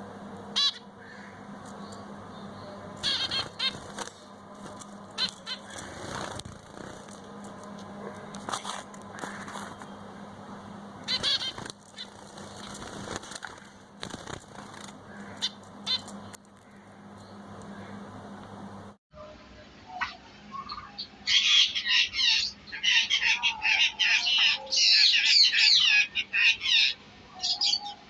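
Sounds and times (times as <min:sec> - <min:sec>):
faint low hum: 0:00.0 - 0:21.3
finches chirping: 0:00.5 - 0:07.2, 0:11.0 - 0:18.1.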